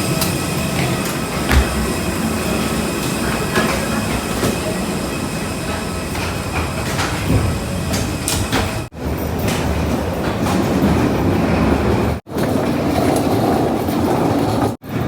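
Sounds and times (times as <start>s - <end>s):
train rumbling: 0.0s - 15.0s
short knocks: 1.5s - 2.7s.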